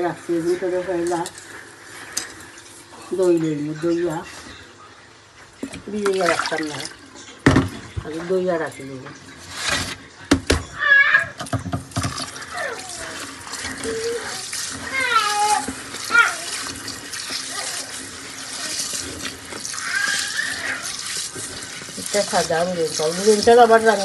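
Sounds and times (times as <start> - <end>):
tap running into sink: 11.3 - 12.4.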